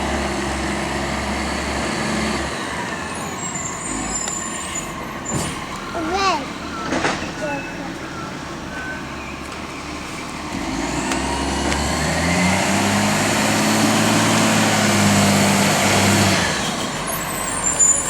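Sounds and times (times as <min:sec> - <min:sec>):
truck engine revving with high whine: 0:00.0 - 0:05.9, 0:06.5 - 0:18.0.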